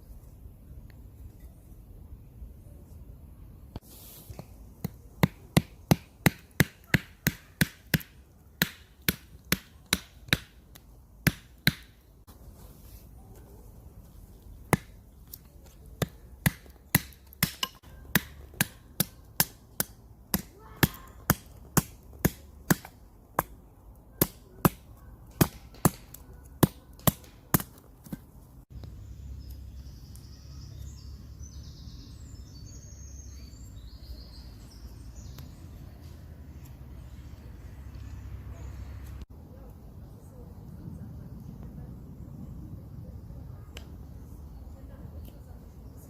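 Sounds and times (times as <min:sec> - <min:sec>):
wood being chopped: 0:04.4 - 0:12.1, 0:14.6 - 0:28.3
birds chirping: 0:28.8 - 0:46.0
low outdoor rumble: 0:35.5 - 0:46.0.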